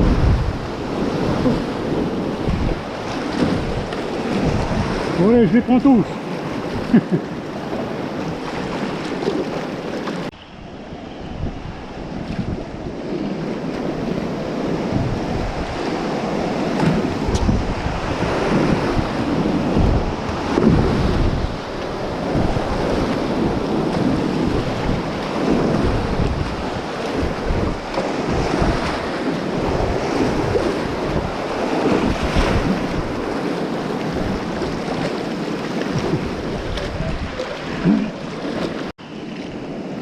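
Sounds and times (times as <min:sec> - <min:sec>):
whitewater rapids rushing: 0:00.0 - 0:10.3
wind buffeting microphone: 0:00.0 - 0:40.0.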